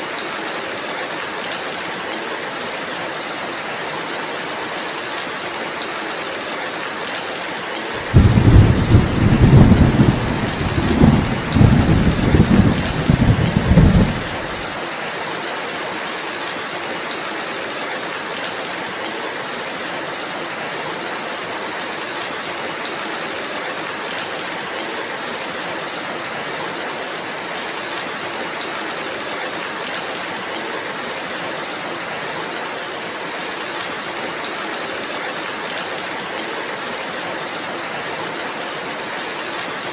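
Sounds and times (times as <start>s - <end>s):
steady rain falling: 0.0s - 39.9s
thunder rumbling: 8.0s - 14.7s.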